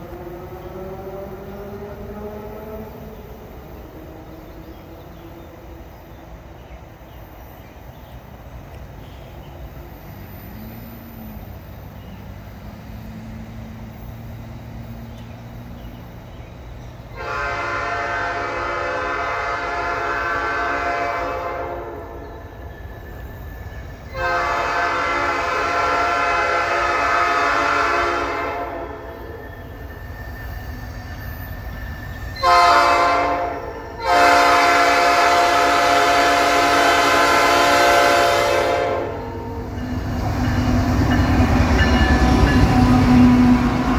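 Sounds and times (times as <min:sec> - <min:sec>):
low rumble of freight train: 0:00.0 - 0:43.9
locomotive air horn blasts: 0:17.2 - 0:22.2, 0:24.1 - 0:29.1, 0:32.4 - 0:40.4, 0:41.4 - 0:43.9.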